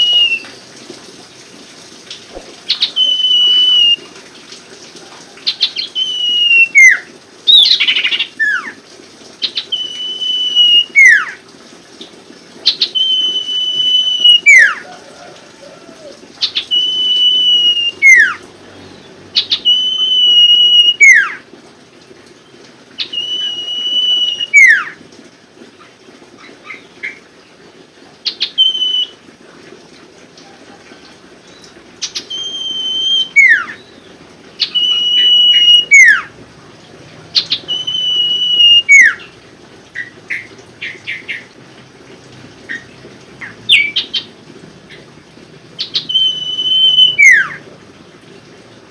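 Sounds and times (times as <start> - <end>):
songbird whistling song: 0.0 - 0.7, 2.7 - 4.1, 5.5 - 8.8, 9.4 - 11.4, 12.7 - 18.4, 19.4 - 21.4, 22.4 - 25.0, 28.2 - 29.2, 31.0 - 36.3, 37.4 - 39.3, 43.4 - 44.3, 45.8 - 47.6.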